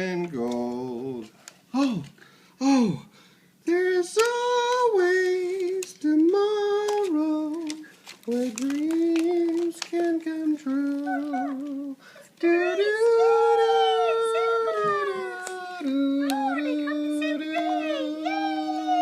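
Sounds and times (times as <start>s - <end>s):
young voice singing slowly: 10.2s - 19.0s.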